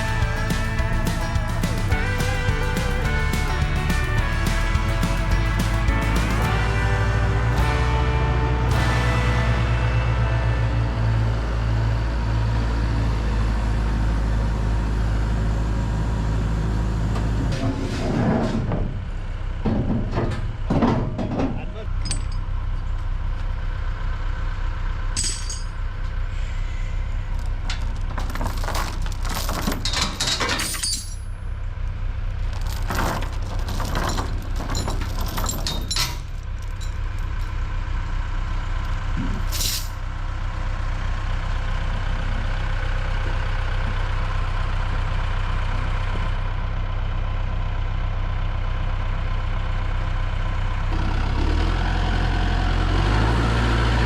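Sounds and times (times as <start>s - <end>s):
metallic clanks and rattles: 0.0s - 6.8s, 19.6s - 22.6s, 25.2s - 25.8s, 27.6s - 31.4s, 32.5s - 37.6s, 39.2s - 40.0s
vehicle engine running: 0.0s - 29.9s, 31.2s - 54.0s.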